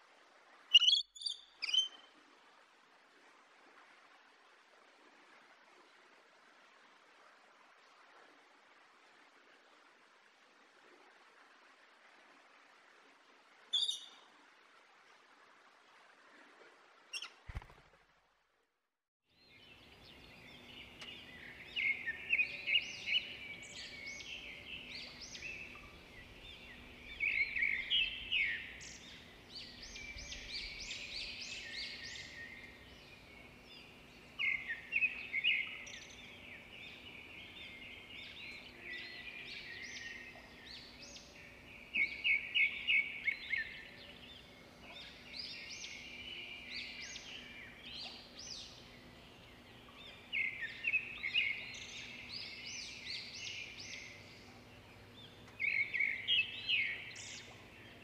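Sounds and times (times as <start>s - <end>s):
small birds chirping: 0.7s - 2.0s, 19.5s - 58.0s.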